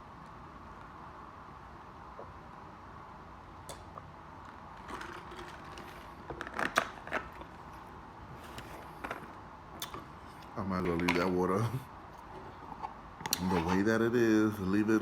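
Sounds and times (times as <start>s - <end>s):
steady low hum: 0.0s - 15.0s
plastic bottle crackling: 4.7s - 7.8s.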